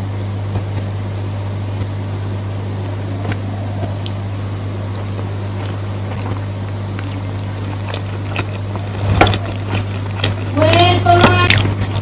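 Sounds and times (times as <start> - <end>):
steady low hum: 0.0 - 12.0
eating clicks and smacks: 3.2 - 4.2, 5.0 - 12.0.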